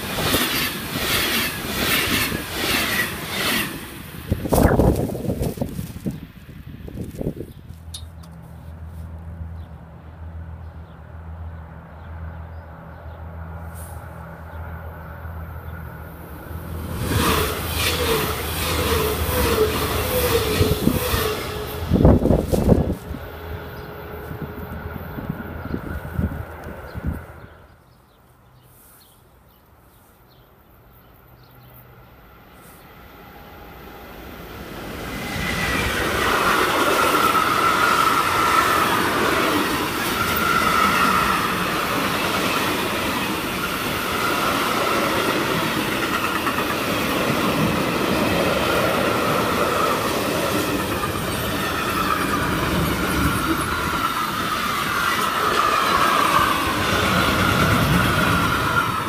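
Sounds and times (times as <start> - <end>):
locomotive rumble: 0.0 - 27.8.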